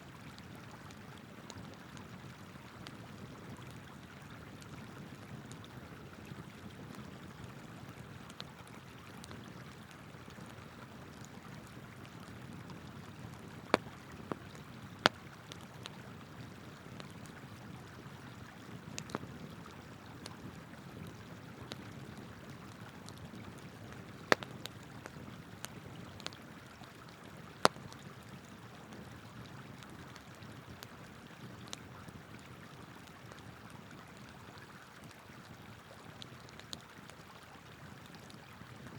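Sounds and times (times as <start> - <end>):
campfire crackling and popping: 0.1 - 38.9
river water flowing: 34.3 - 38.8.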